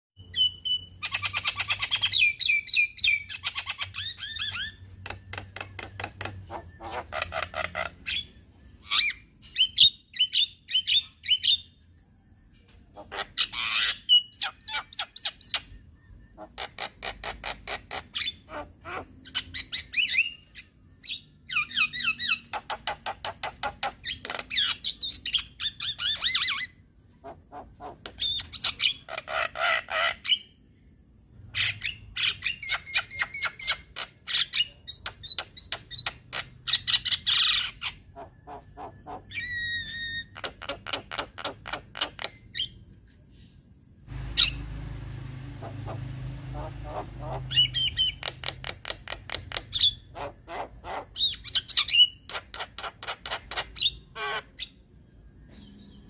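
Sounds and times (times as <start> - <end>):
bird chattering and whistling: 0.2 - 11.7, 31.6 - 42.8, 44.2 - 44.8, 45.5 - 54.8.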